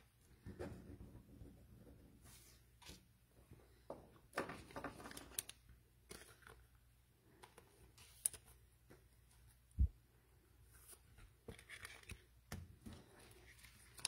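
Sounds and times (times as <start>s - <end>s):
cards rustling and scraping: 4.5s - 8.6s, 10.7s - 14.0s.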